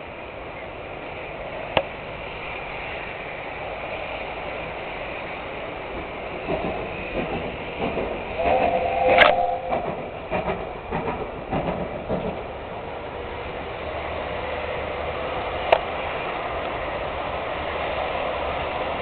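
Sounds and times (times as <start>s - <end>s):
steam locomotive rumble: 0.0s - 19.0s
steam locomotive exhaust beats: 0.2s - 13.8s
two-note steam whistle: 8.4s - 10.1s.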